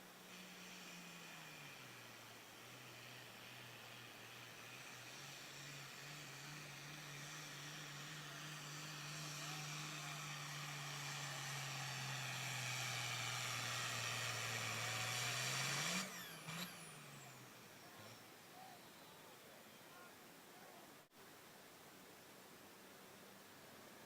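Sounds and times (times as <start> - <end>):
short engine rev: 0.0 - 18.3
turbo and exhaust hiss: 0.0 - 24.0
diesel tractor engine under load: 0.1 - 17.8.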